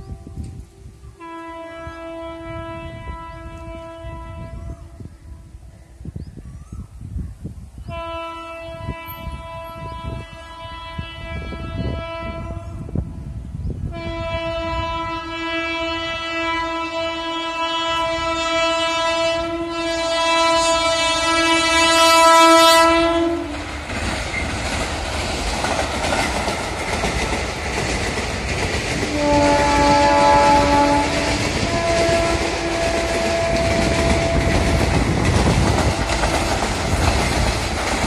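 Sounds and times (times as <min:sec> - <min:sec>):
diesel locomotive horn blast: 0:00.0 - 0:05.4, 0:07.9 - 0:13.1, 0:13.9 - 0:23.7, 0:29.0 - 0:35.2
train wheels clattering on rails: 0:23.4 - 0:38.0.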